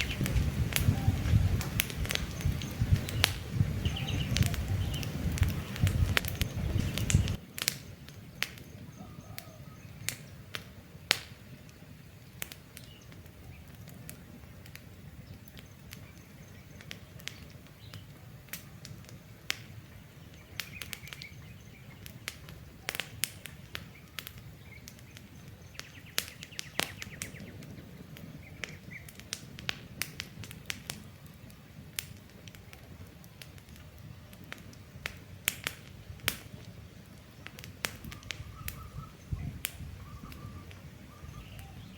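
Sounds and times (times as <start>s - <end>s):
campfire crackling and popping: 0.0s - 41.9s
faint bird chirps: 2.2s - 7.4s, 8.2s - 10.4s, 37.3s - 41.9s.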